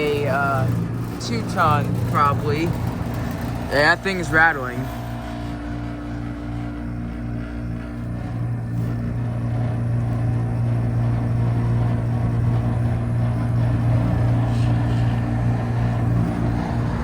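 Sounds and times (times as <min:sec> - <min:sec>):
air conditioner rattling: 0:00.0 - 0:17.0
air conditioner unit humming: 0:00.0 - 0:17.0.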